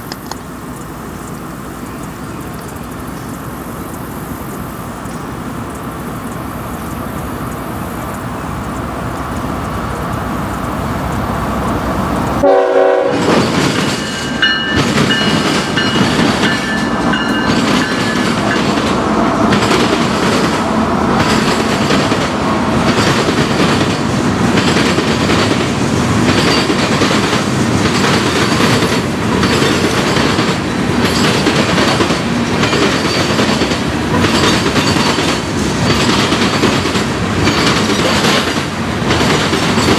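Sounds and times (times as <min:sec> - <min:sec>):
freight train passing: 0:00.0 - 0:39.9
train horn: 0:12.4 - 0:14.6
wheels clattering over rail joints: 0:13.1 - 0:39.9.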